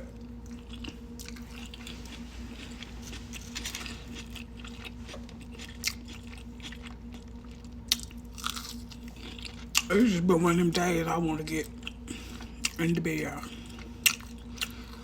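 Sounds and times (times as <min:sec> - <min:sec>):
person chewing food: 0:00.0 - 0:09.9, 0:11.6 - 0:15.0
steady low hum: 0:00.0 - 0:15.0.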